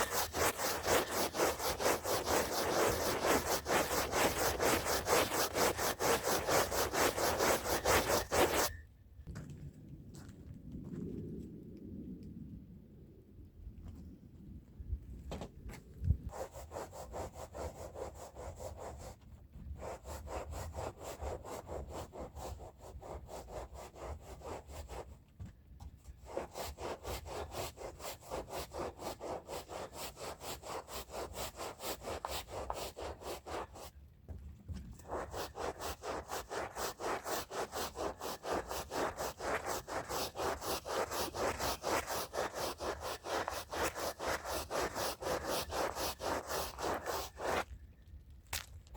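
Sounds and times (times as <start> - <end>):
stiff brush scrubbing a rug: 0.0 - 8.8, 16.3 - 25.2, 26.2 - 34.0, 34.9 - 47.7.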